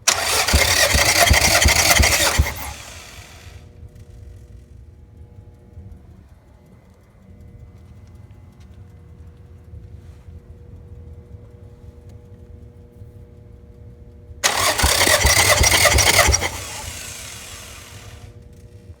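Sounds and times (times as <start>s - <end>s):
engine cranking by starter: 0.0s - 3.6s, 14.4s - 18.3s.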